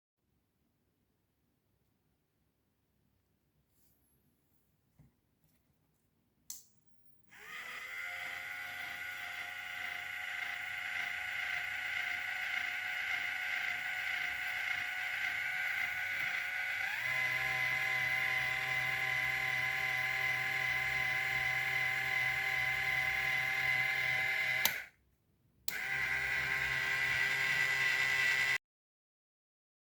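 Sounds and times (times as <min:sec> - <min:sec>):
motor cutoff click: 0:07.3 - 0:24.9, 0:25.7 - 0:28.6
small motor whining: 0:07.3 - 0:24.9, 0:25.7 - 0:28.6.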